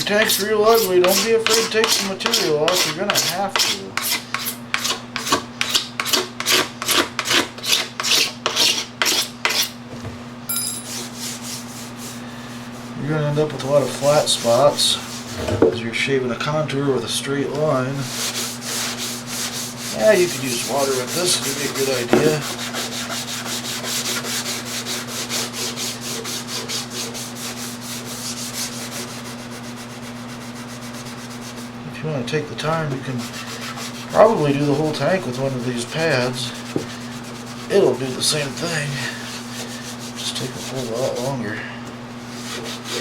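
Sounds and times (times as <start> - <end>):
steady low hum: 9.4 - 26.8
scrubber pad scrubbing plastic: 18.0 - 31.8, 32.6 - 41.5, 42.2 - 43.0.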